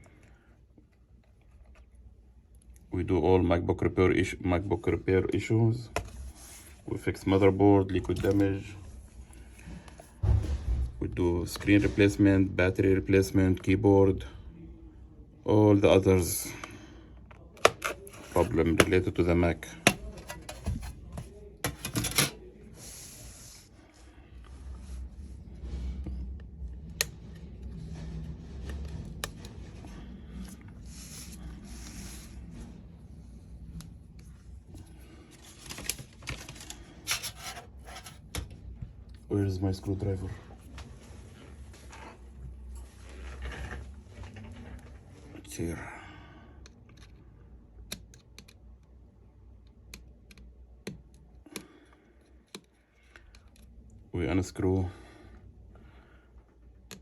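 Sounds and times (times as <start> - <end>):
rubbing and scraping: 17.6 - 19.1, 19.8 - 22.4, 35.0 - 38.3.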